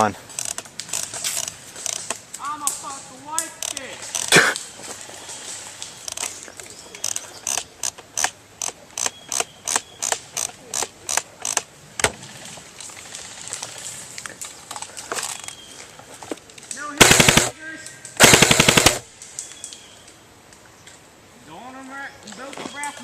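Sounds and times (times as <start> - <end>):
magazine thumb wheel ratcheting clicks: 0.4 - 2.2, 7.0 - 11.7.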